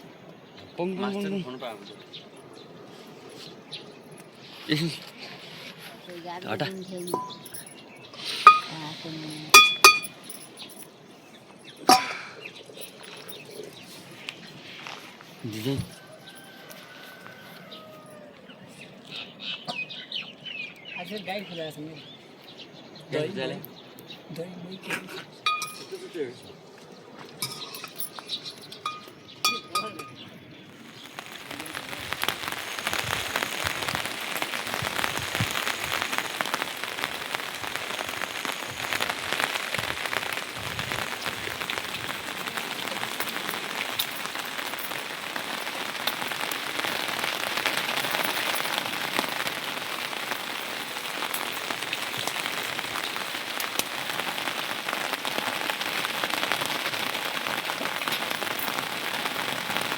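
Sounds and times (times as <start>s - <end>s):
steady rain patter: 0.0s - 59.9s
light clinks: 7.0s - 14.3s, 25.4s - 26.2s, 27.3s - 30.4s.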